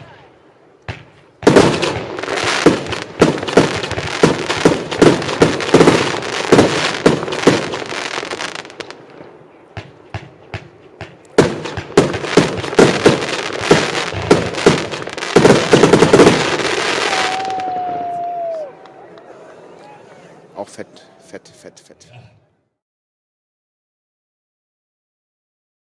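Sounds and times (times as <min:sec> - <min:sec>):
firework shots: 0:00.8 - 0:18.0
firework crackling: 0:00.9 - 0:18.7.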